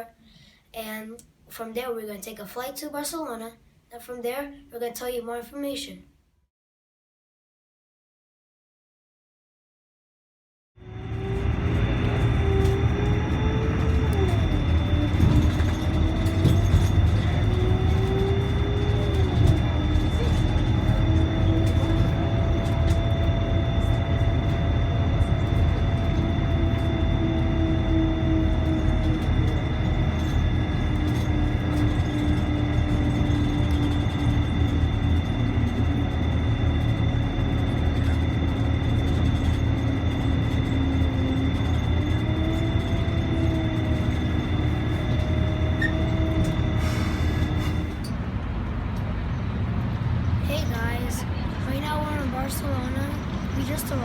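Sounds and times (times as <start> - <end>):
train motor whine: 10.8 - 54.0
train rumble: 10.8 - 54.0.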